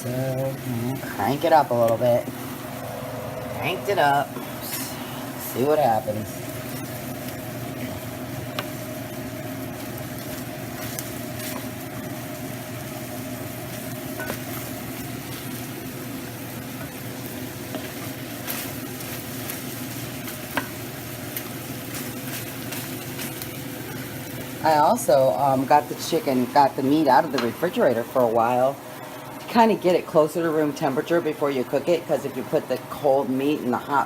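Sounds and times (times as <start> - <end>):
chicken sizzling in a pan: 0.0 - 34.0
steady hum: 0.0 - 34.0.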